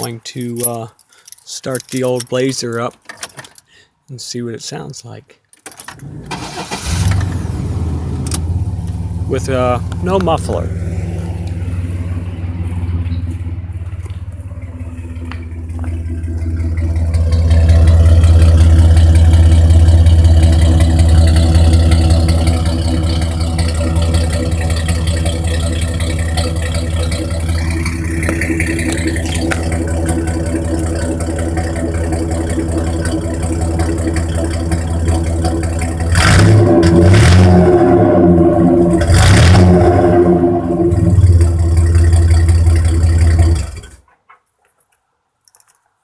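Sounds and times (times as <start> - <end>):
car engine through straight pipe exhaust: 6.2 - 44.0.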